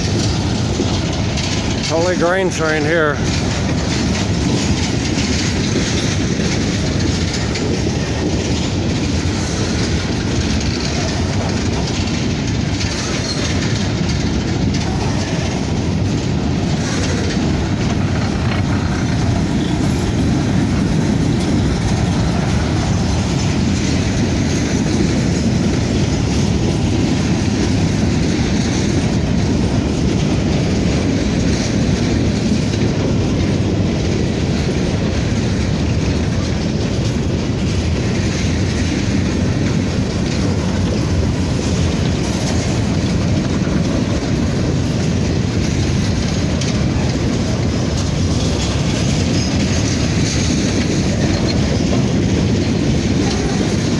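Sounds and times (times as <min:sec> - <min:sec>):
train wheels rumbling on rail: 0:00.0 - 0:53.9
wheels clickety-clack: 0:00.0 - 0:53.9.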